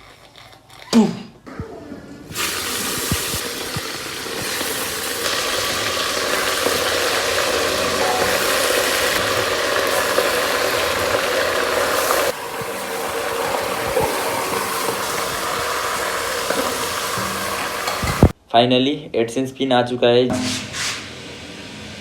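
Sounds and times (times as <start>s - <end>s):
food sizzling in a hot pan: 2.3s - 18.4s.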